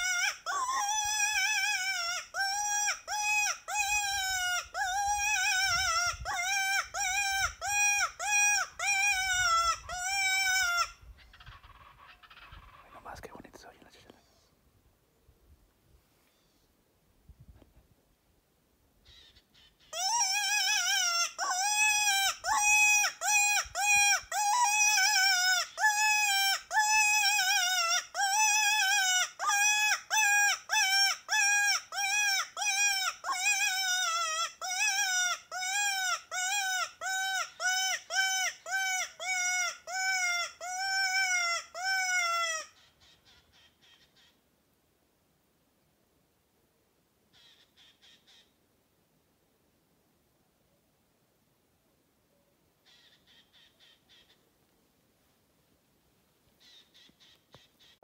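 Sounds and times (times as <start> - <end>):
bird calling repeatedly: 0.0 - 13.1, 19.0 - 44.4, 47.3 - 48.6, 52.8 - 54.5, 56.6 - 58.0.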